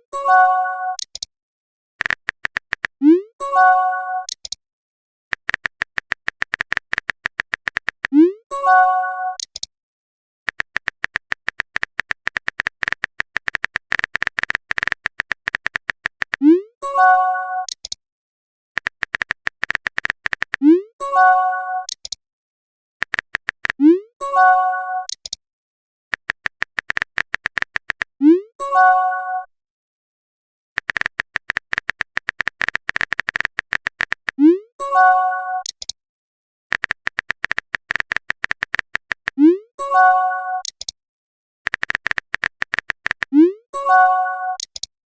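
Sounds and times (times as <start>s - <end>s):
keyboard typing clicks: 0.9s - 1.3s, 2.0s - 3.2s, 4.2s - 4.6s, 5.3s - 8.4s, 9.3s - 9.7s, 10.5s - 16.6s, 17.6s - 18.0s, 18.8s - 20.8s, 21.8s - 22.2s, 23.0s - 24.0s, 25.0s - 25.4s, 26.1s - 28.2s, 30.8s - 34.6s, 35.6s - 36.0s, 36.7s - 39.6s, 40.6s - 41.0s, 41.7s - 44.9s.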